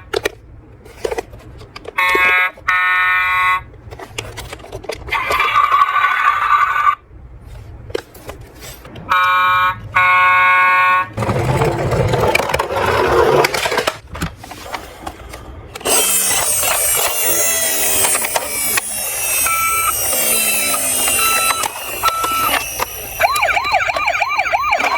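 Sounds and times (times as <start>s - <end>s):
rattling noise: 11.2s - 24.1s
toy siren and alarm tones: 15.9s - 24.9s.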